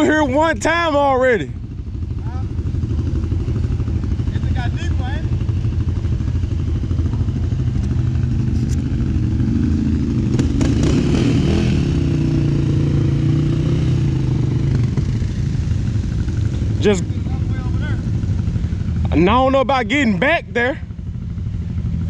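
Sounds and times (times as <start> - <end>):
atv engine revving: 0.0 - 22.0.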